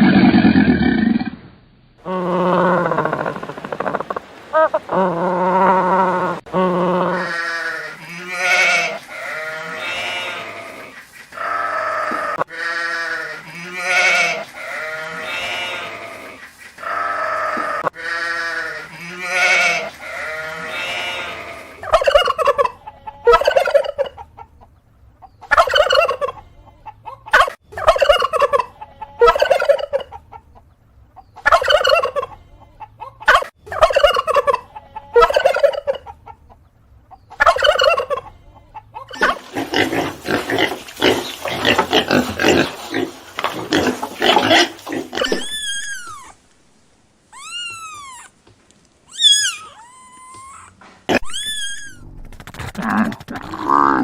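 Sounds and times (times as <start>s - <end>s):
turkeys gobbling: 2.4s - 6.4s, 21.8s - 30.6s, 31.4s - 36.7s, 37.3s - 46.4s
rising and falling bird calls: 45.3s - 46.4s, 49.1s - 52.4s.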